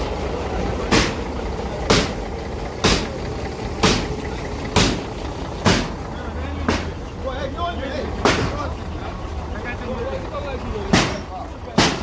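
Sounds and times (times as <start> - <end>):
low engine rumble: 0.0 - 12.0
heavy knocks: 0.9 - 7.2, 8.2 - 8.8, 10.9 - 12.0.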